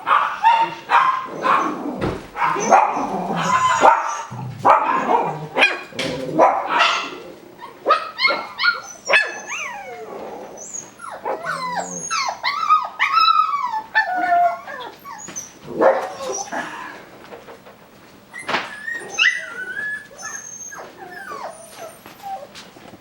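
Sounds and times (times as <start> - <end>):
puppies barking and yipping: 0.0 - 16.8, 17.5 - 22.8
puppies whimpering: 0.6 - 4.3, 7.0 - 17.0, 18.3 - 22.7.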